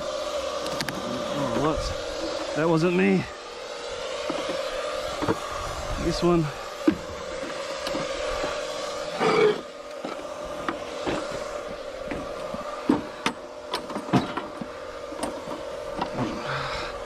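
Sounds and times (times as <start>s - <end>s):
steady engine hum: 0.0s - 17.0s
lawn mowers knocking and rattling: 12.0s - 16.3s.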